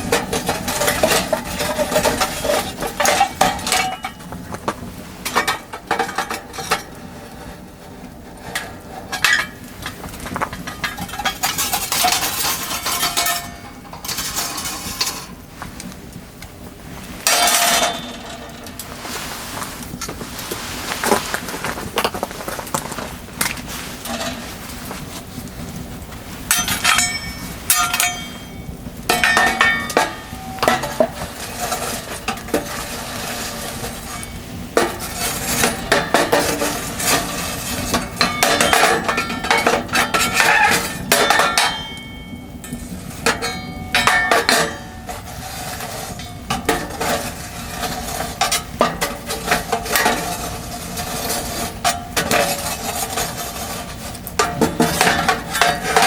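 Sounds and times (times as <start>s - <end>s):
metal cookware clinking and scraping: 0.0s - 4.3s, 10.6s - 15.4s, 17.2s - 25.0s, 26.5s - 56.0s.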